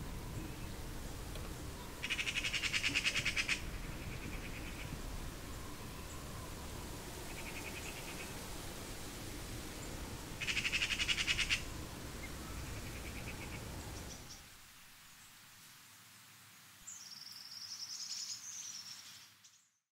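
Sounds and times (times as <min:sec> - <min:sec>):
bird high wavering song: 0:00.0 - 0:08.5, 0:09.1 - 0:14.5, 0:16.9 - 0:19.8.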